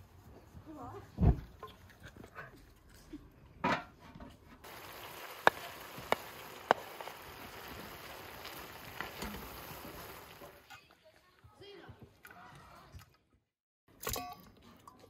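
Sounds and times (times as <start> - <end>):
vegetables sizzling in a pan: 4.6 - 10.7.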